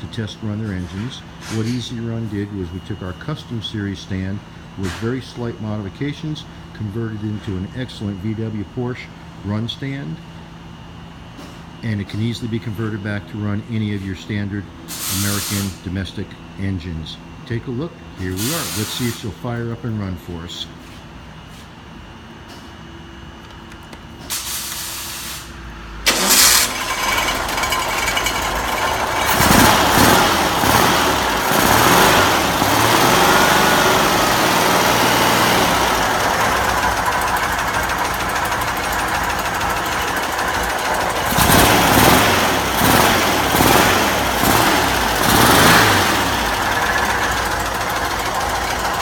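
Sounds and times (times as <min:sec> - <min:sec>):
engine revving and idling: 0:26.0 - 0:49.0
engine starter cranking: 0:26.1 - 0:49.0.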